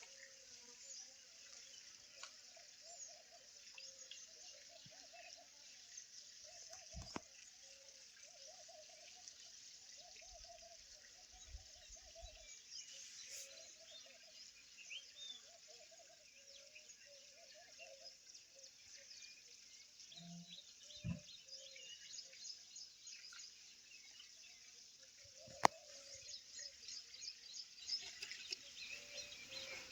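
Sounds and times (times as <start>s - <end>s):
insects chirping: 23.1s - 29.9s
frogs calling: 25.4s - 26.2s.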